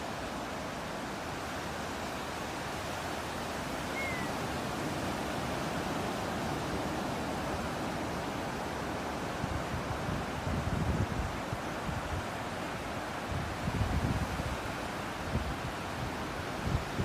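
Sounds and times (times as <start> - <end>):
ocean surf rushing: 2.4 - 10.0
short high bird chirp: 3.9 - 4.3.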